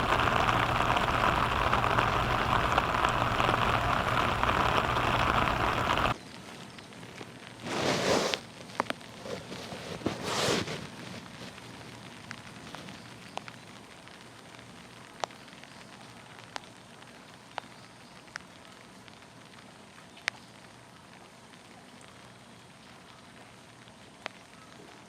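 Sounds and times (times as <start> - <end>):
heavy drops dripping: 0.0 - 6.2
short noisy burst: 0.0 - 6.2
steady rain: 0.0 - 7.8, 10.8 - 25.0.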